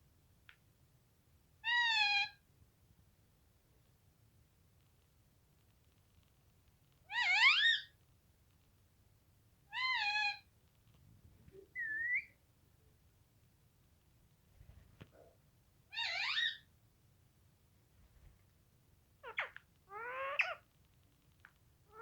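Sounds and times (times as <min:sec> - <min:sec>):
parrot calling: 0:07.1 - 0:07.9, 0:15.9 - 0:16.6, 0:19.2 - 0:20.6.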